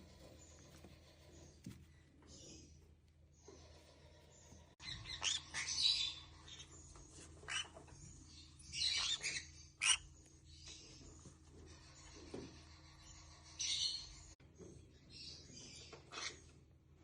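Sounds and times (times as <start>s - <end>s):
parrot chirps and squawks: 4.8s - 6.8s, 7.4s - 7.9s, 8.7s - 10.2s.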